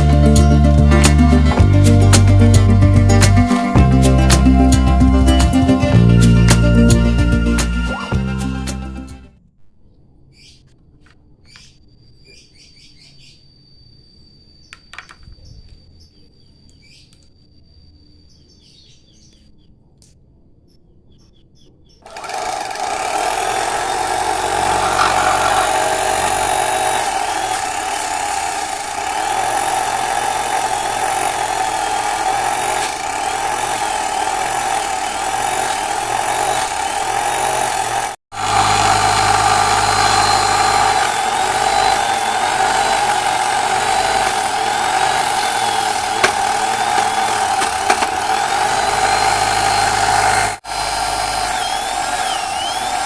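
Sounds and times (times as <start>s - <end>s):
small electric motor whining: 22.1s - 53.0s.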